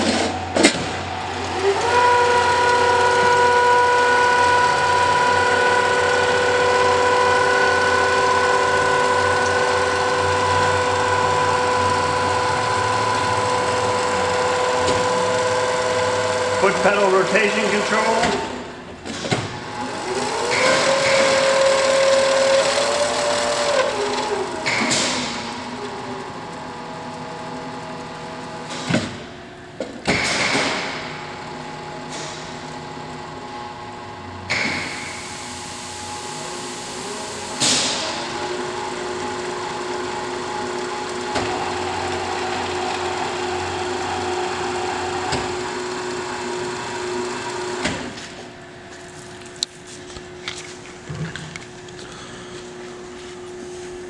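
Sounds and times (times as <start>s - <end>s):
motor whine: 0.0s - 28.8s.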